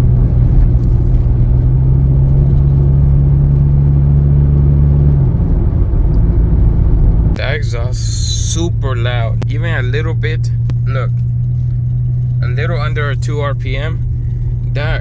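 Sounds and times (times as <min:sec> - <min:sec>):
loud car exhaust drone: 0:00.0 - 0:15.0.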